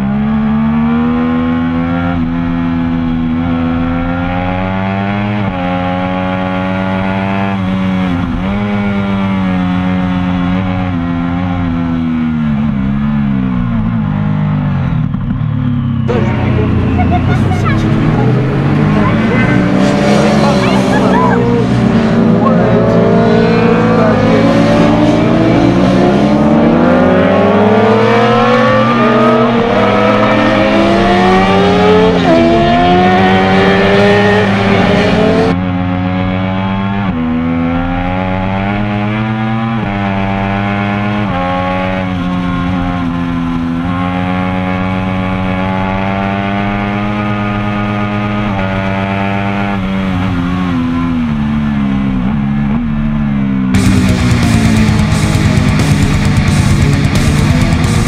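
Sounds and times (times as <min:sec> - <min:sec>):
onboard motorcycle engine: 0:00.0 - 0:58.0
racing motorcycle engines revving: 0:00.0 - 0:58.0.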